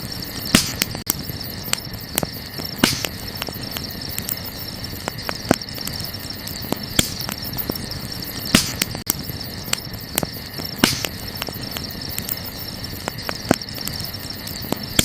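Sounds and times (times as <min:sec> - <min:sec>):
campfire crackling and popping: 0:00.0 - 0:15.0
crickets chirring: 0:00.0 - 0:15.0.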